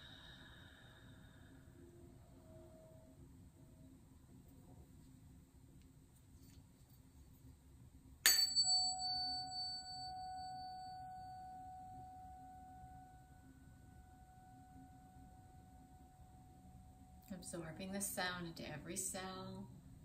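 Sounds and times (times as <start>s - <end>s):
tuning fork ringing tone: 1.8s - 3.9s, 8.2s - 17.4s
tuning fork strike click: 8.2s - 17.4s.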